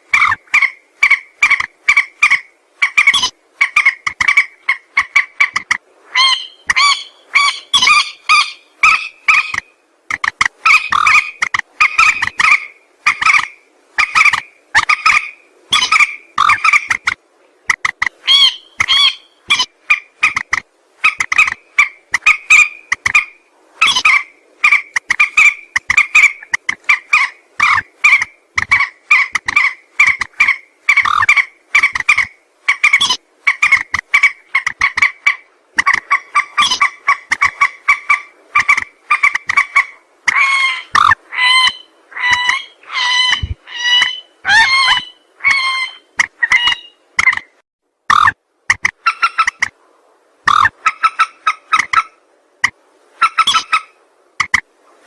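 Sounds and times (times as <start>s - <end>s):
rail bird calling harsh notes: 0.1s - 17.1s, 17.7s - 47.5s, 53.2s - 54.6s.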